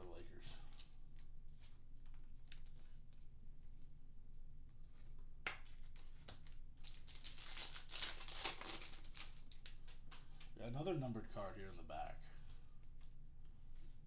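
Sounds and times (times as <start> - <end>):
foil wrapper tearing and crinkling: 5.6 - 10.0.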